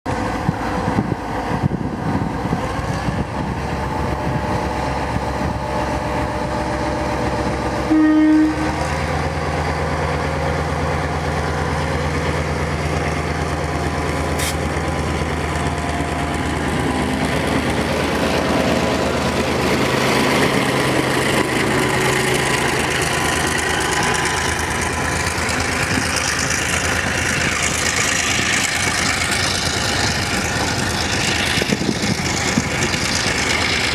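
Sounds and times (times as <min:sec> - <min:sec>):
diesel engine low drone: 0:00.1 - 0:33.9
train rolling and clattering: 0:00.1 - 0:33.9
train horn blast: 0:06.6 - 0:09.0.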